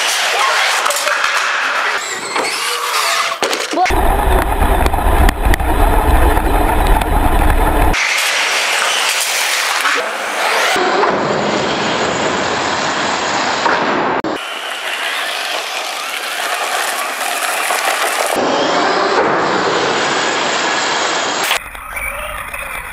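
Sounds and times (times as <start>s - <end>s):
tyres on rough ground: 14.7s - 18.4s.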